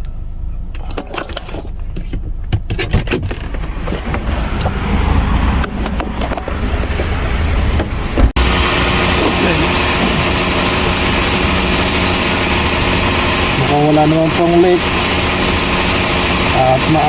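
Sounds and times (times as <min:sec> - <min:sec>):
car engine idling: 0:03.4 - 0:17.0
handling clicks and knocks: 0:05.6 - 0:07.2.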